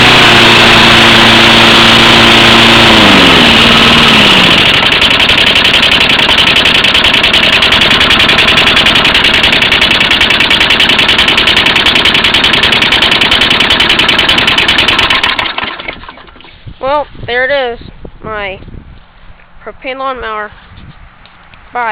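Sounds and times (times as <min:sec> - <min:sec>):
lawn mower engine running: 0:00.0 - 0:17.0.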